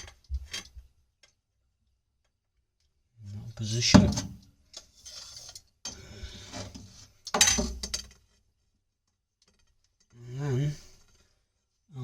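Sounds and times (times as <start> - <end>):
pipe and tools scraping and rattling: 3.7 - 8.4.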